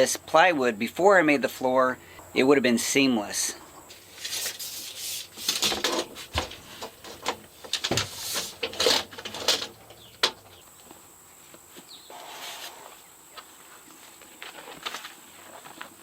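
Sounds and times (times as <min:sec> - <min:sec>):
vinyl flooring scraping and rustling: 0:03.9 - 0:09.8, 0:10.8 - 0:16.0.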